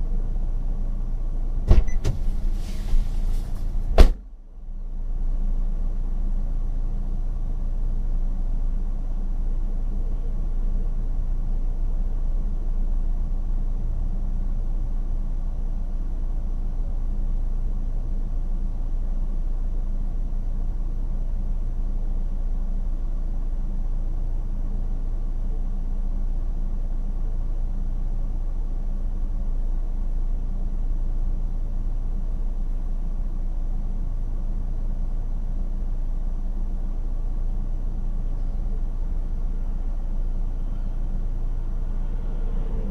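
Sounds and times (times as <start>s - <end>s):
car engine and road noise: 0.0s - 17.2s, 35.5s - 42.9s.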